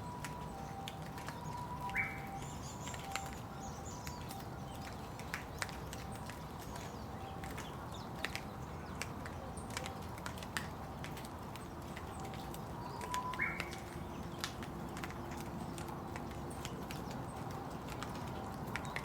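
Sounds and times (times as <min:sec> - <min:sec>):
rain falling: 0:00.0 - 0:19.0
raindrops tapping on surfaces: 0:00.0 - 0:19.0
bird call: 0:01.5 - 0:05.0, 0:12.8 - 0:13.9.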